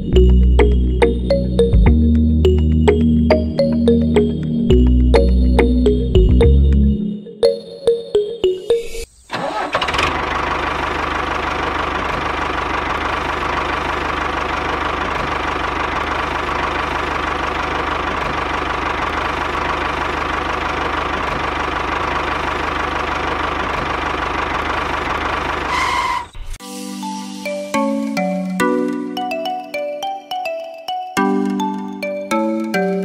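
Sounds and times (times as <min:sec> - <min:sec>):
small tractor engine running: 0:09.3 - 0:26.3.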